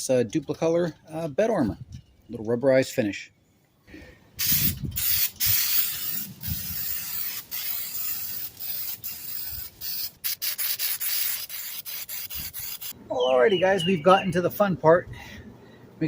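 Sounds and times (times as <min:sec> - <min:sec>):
aerosol can spraying: 0:04.4 - 0:13.0.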